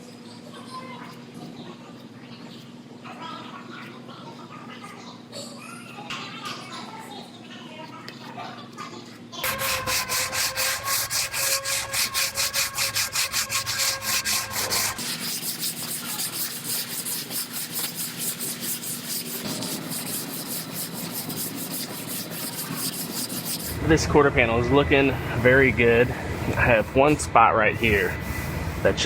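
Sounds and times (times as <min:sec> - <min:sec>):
sanding body filler: 0:09.4 - 0:29.0.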